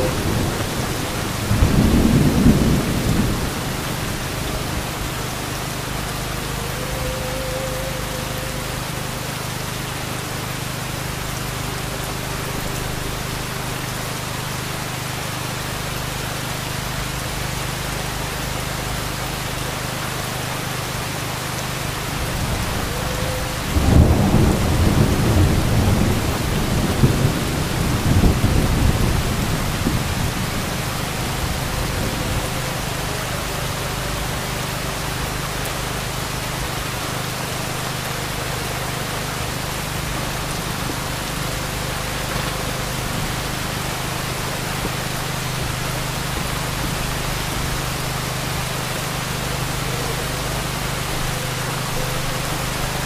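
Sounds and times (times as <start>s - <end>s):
thunder clap and rumble: 0.0s - 7.1s, 22.1s - 33.3s
heavy rain falling: 0.0s - 53.0s.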